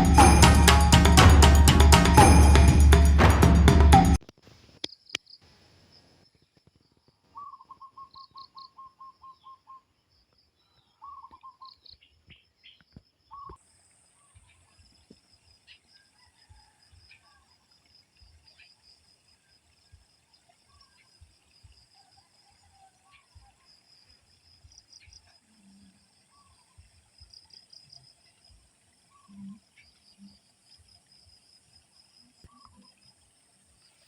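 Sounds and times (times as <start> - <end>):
high steady chirping: 0.0 - 4.2.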